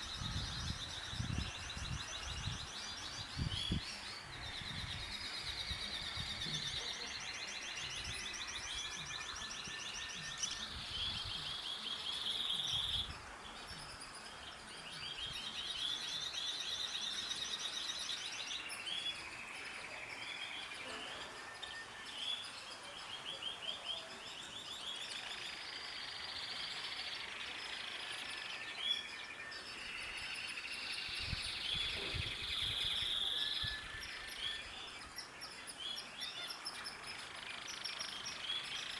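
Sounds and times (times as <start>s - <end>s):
birds chirping and trilling: 0.0s - 38.9s.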